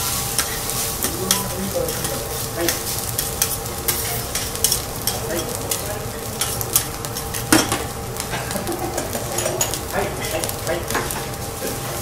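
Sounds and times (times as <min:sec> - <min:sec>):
rice sizzling on griddle: 0:00.0 - 0:12.0
metal spatula scraping and tapping: 0:00.4 - 0:05.8, 0:06.4 - 0:07.8.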